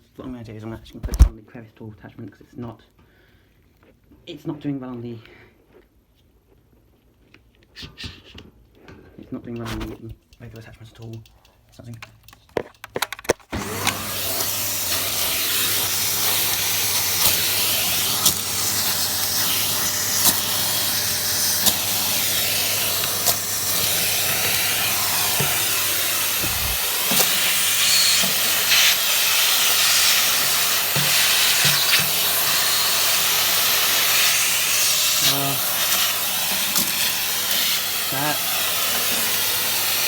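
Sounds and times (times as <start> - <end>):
vacuum cleaner suction hiss: 13.5 - 40.0.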